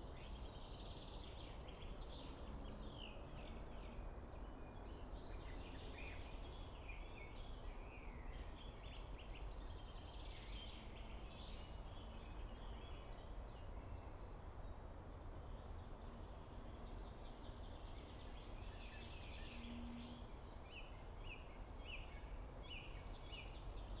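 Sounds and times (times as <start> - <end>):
songbirds singing: 0.0 - 24.0.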